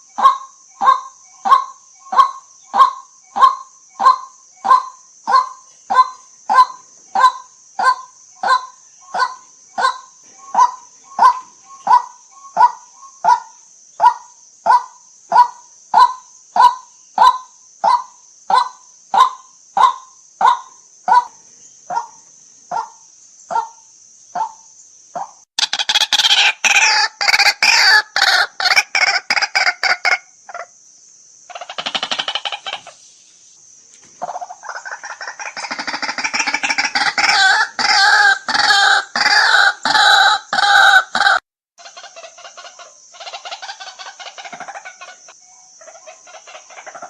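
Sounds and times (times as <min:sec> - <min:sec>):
waterhen kwak call: 0:25.2 - 0:30.3, 0:34.2 - 0:45.2.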